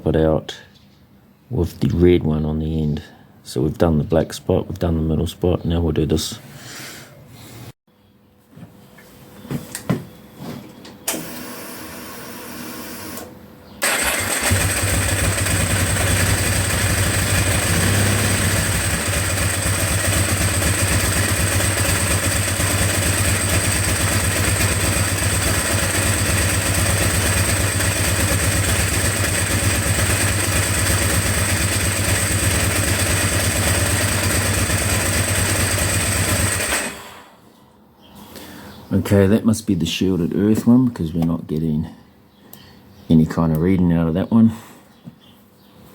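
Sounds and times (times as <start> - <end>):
starter motor whirr: 13.0 - 37.2
motorcycle engine idling: 13.8 - 37.0.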